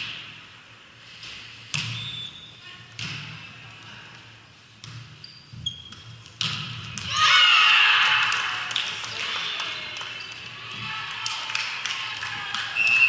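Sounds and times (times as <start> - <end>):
crowd shouting and cheering: 7.0 - 13.0.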